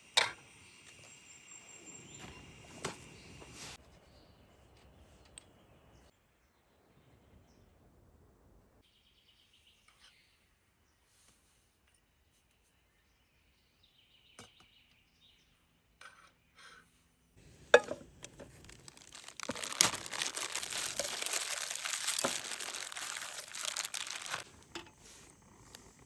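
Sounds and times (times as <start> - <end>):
crinkling and rustling: 17.5 - 25.9.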